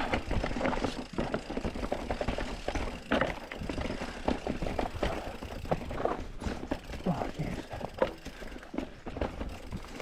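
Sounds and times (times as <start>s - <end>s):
mountain bike clattering over rocks: 0.0s - 10.0s.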